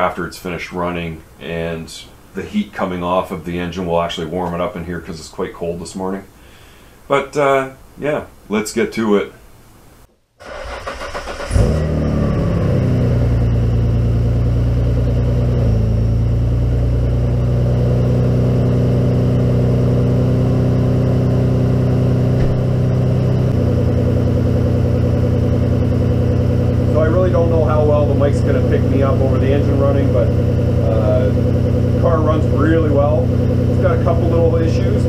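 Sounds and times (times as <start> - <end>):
car engine cranking: 10.4 - 15.7, 20.0 - 35.0
car engine idling: 10.4 - 35.0
engine rev flare: 10.4 - 35.0.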